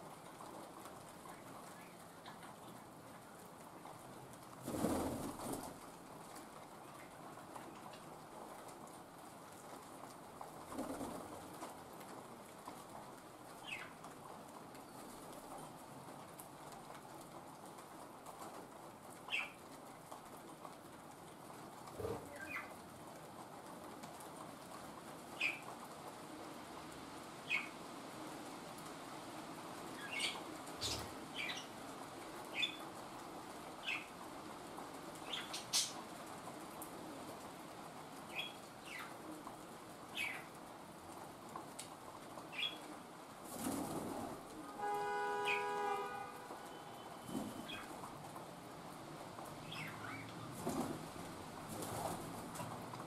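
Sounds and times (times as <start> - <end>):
steady rain: 0.0 - 53.0
small birds chirping: 13.6 - 14.0, 22.0 - 22.8, 25.4 - 25.7, 27.4 - 27.8, 29.9 - 31.8, 32.5 - 32.8, 33.8 - 34.1, 35.2 - 36.0, 38.2 - 39.2, 40.1 - 40.6, 42.5 - 42.9, 49.6 - 50.6.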